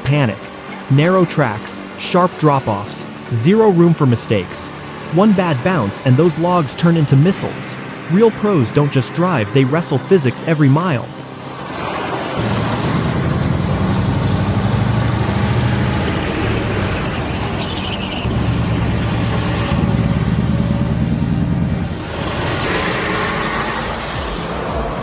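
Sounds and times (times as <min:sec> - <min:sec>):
steady high whine: 0:01.8 - 0:25.0
diesel truck engine running: 0:11.1 - 0:25.0
rushing hiss: 0:12.4 - 0:25.0.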